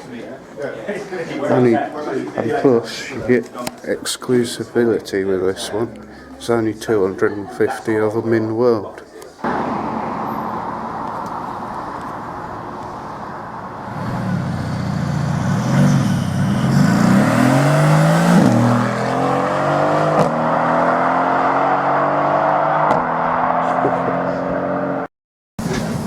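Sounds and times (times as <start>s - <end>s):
car engine revving and accelerating: 9.4s - 25.1s.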